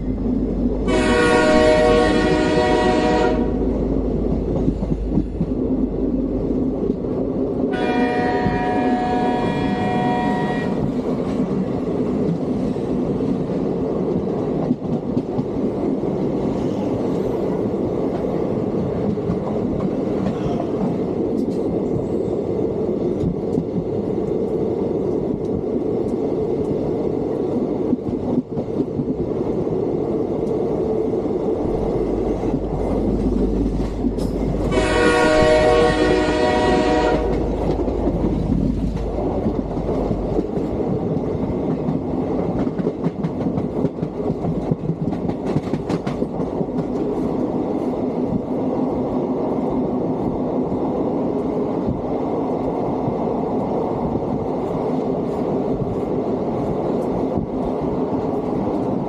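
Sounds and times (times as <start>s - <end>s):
electric train rumbling and rattling: 0.0s - 59.0s
train horn: 0.8s - 3.6s, 7.7s - 11.0s, 34.5s - 37.7s.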